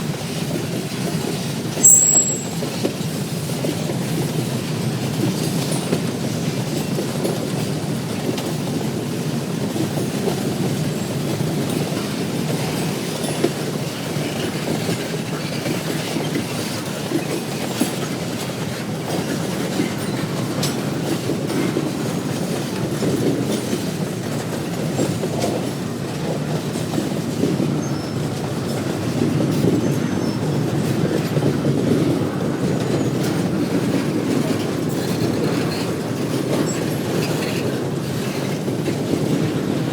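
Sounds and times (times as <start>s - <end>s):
train rumbling along track: 0.0s - 39.9s
train wheels clacking on rail joints: 0.0s - 39.9s.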